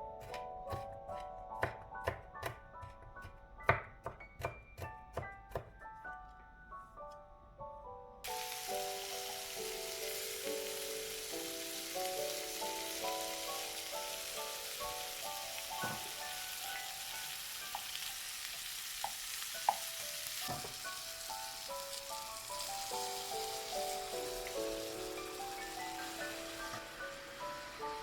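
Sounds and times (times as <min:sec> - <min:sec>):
gentle melodic background music: 0:00.0 - 0:28.0
food sizzling in a frying pan: 0:08.2 - 0:28.0.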